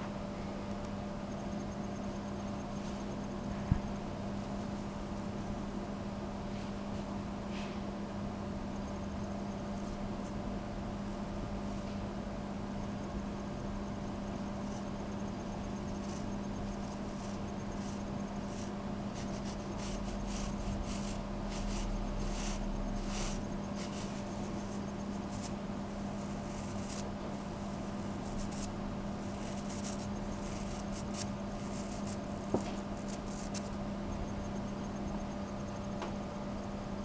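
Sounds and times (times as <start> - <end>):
steady low hum: 0.0 - 37.0
bristle brush scrubbing: 17.1 - 33.7.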